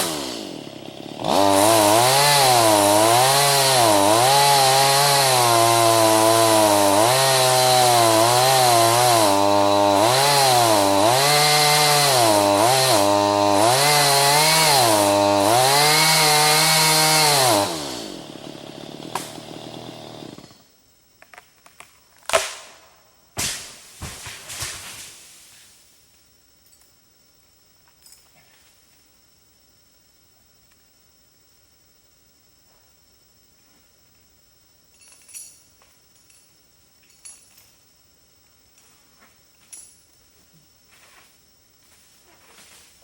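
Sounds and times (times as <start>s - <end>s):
chainsaw cutting wood: 0.0s - 20.6s.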